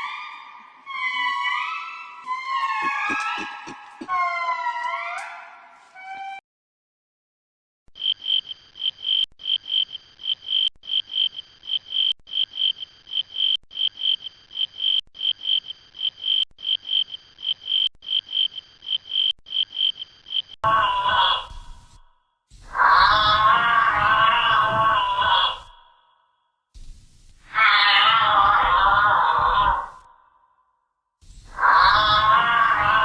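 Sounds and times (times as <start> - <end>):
animal chirping: 0.2 - 5.3.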